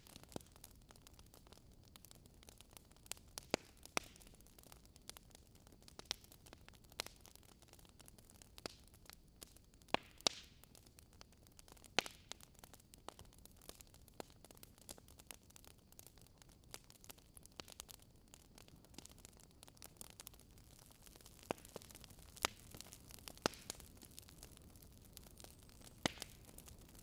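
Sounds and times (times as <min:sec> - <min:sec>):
wood fire popping: 0:00.0 - 0:27.0
fire hissing: 0:16.7 - 0:27.0.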